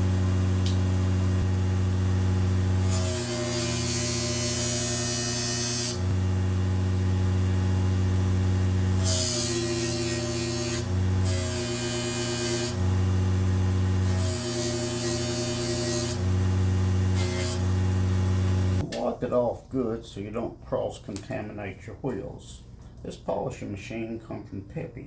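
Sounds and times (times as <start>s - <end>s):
polishing machine humming: 0.0s - 18.8s.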